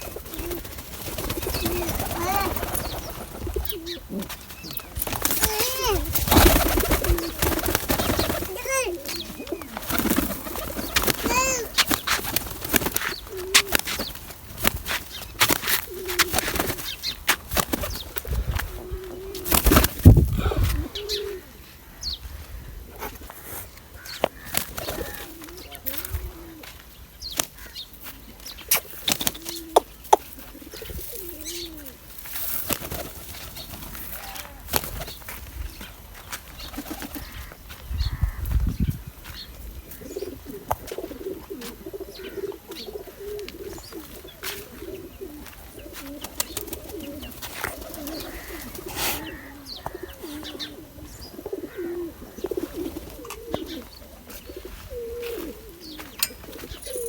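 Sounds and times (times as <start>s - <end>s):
wings flapping: 0.0s - 18.3s, 19.4s - 20.3s, 32.6s - 35.4s, 36.6s - 37.4s, 46.0s - 48.9s
pigeons cooing: 0.0s - 26.8s, 28.6s - 32.1s, 39.8s - 57.0s.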